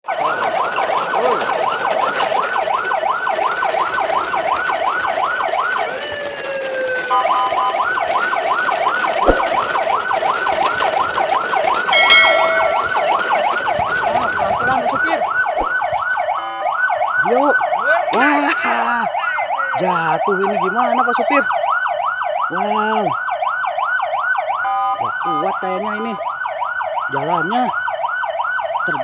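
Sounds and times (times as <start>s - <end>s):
brief beep-like tone: 12.0s - 12.9s
electronic yelp siren wailing: 16.2s - 29.0s.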